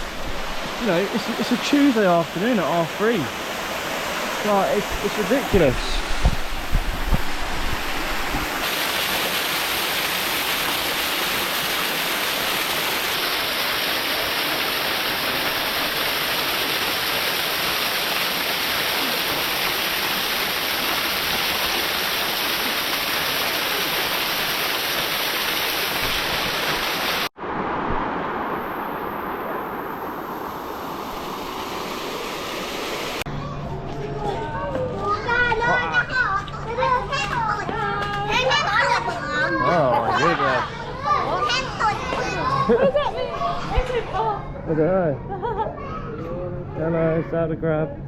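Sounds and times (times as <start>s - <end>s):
dull rushing noise: 0.0s - 8.6s, 26.0s - 33.2s
waterfall rushing: 0.0s - 33.3s.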